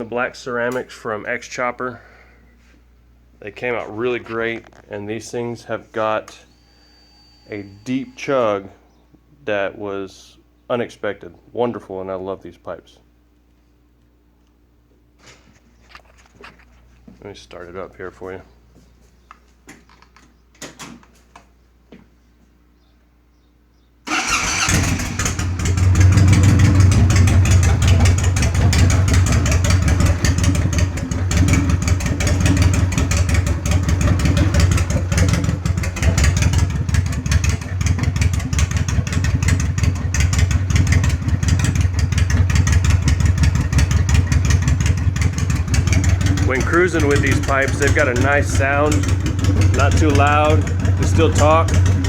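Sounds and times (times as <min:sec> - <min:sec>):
motorcycle engine idling: 0:24.1 - 0:52.0.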